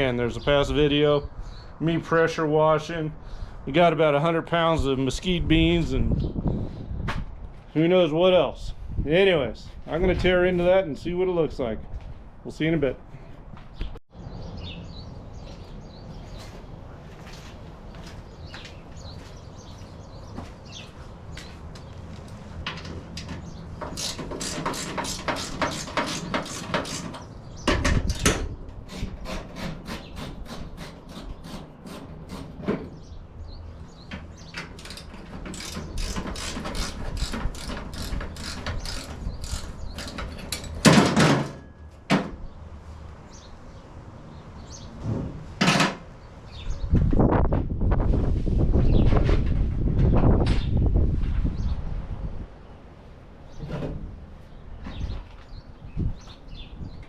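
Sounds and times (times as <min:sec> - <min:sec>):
rapid ratchet clicks: 0:23.9 - 0:27.2, 0:34.8 - 0:40.6.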